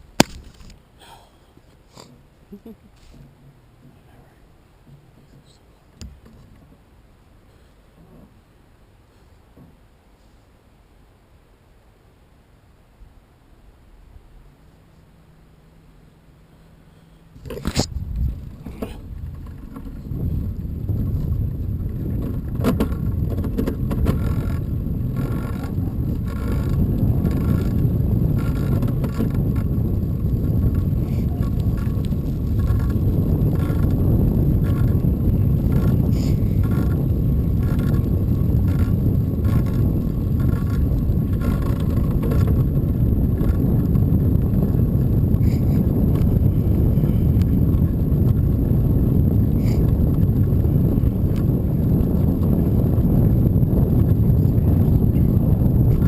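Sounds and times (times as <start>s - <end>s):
wind buffeting microphone: 17.2s - 56.0s
bicycle tyre noise: 17.4s - 56.0s.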